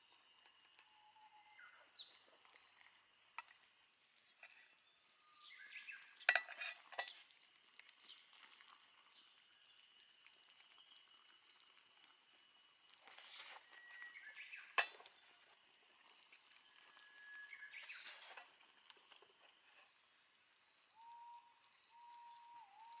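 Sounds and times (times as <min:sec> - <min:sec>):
cookware clinks and rattles: 0:06.3 - 0:07.3, 0:14.8 - 0:15.2
faint high-pitched whine: 0:09.2 - 0:23.0
bird chirp: 0:16.7 - 0:18.4.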